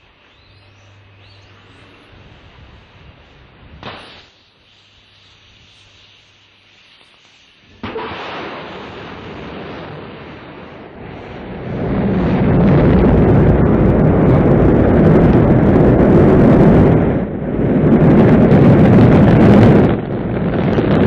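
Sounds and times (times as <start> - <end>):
rocket engines roaring: 7.6 - 21.0.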